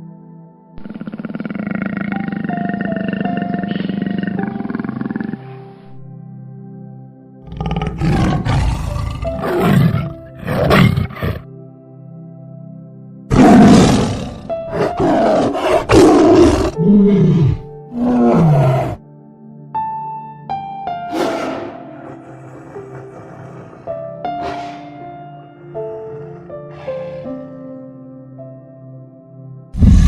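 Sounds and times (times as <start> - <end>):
background music: 0.0 - 30.0
big cat roaring: 0.8 - 5.4, 7.5 - 11.5, 13.3 - 19.0, 21.1 - 27.6, 29.8 - 30.0.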